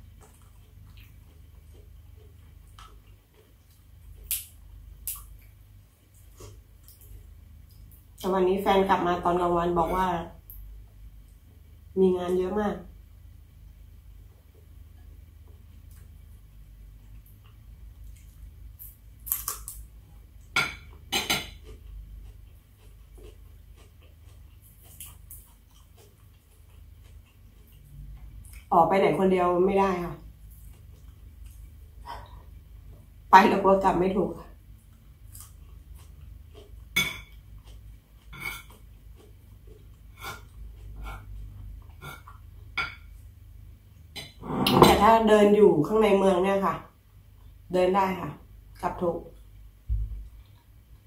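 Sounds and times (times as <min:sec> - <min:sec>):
chewing sounds: 0:00.0 - 0:08.2, 0:20.9 - 0:28.7, 0:34.7 - 0:42.8
low steady hum: 0:00.0 - 0:51.0.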